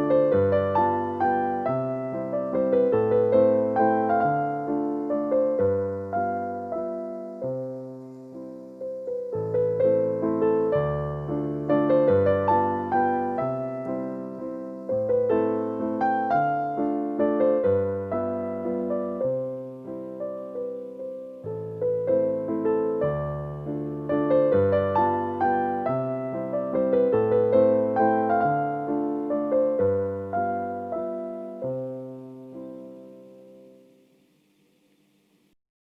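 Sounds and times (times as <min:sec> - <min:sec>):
gentle piano music: 0:00.0 - 0:35.6.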